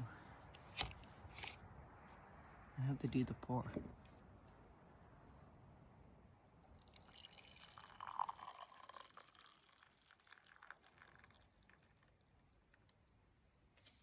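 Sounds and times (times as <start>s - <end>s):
water pouring into a cup: 6.7s - 12.9s.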